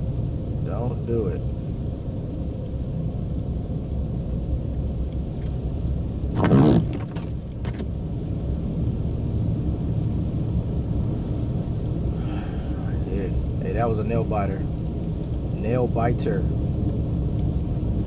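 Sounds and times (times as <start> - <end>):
tyres and engine rumble: 0.0 - 18.0.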